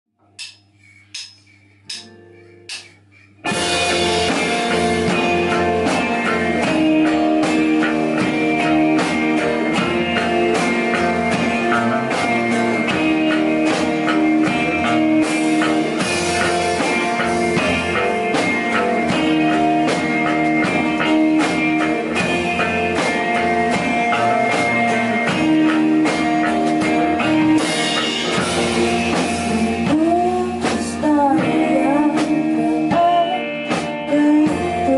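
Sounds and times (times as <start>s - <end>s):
drum kit: 0.2s - 34.9s
guitar: 0.2s - 34.9s
sharp clicks: 0.4s - 3.3s.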